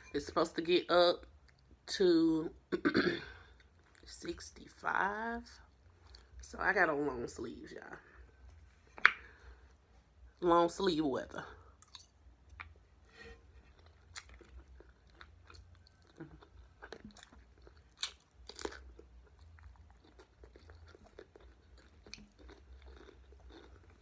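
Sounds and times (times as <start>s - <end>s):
person chewing cucumber: 5.7s - 6.4s, 11.7s - 12.9s, 13.5s - 24.0s.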